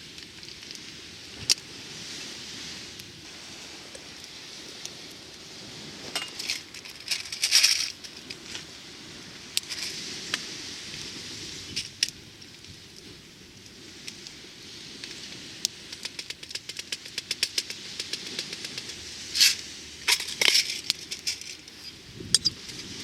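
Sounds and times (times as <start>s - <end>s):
steady hiss: 0.0s - 23.0s
metal cookware clinking: 6.2s - 6.6s.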